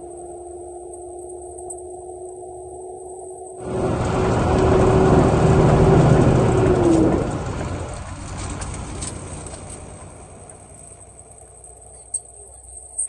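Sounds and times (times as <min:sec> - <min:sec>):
road vehicle passing: 0:03.5 - 0:13.0.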